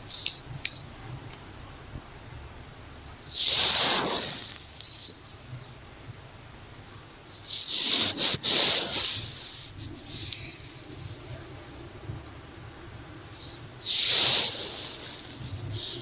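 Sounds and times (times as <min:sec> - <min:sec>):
brush scratching on microphone: 0:03.0 - 0:05.7, 0:06.8 - 0:11.9, 0:13.2 - 0:16.0.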